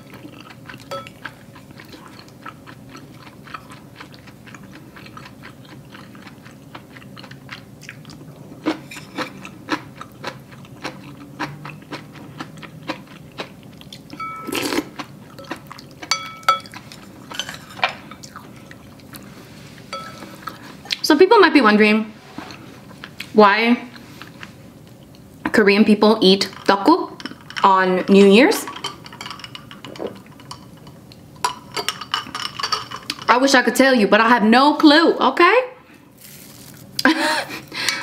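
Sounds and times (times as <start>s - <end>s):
person chewing with wet clicks: 0.0s - 17.3s, 18.1s - 19.2s, 24.0s - 25.4s.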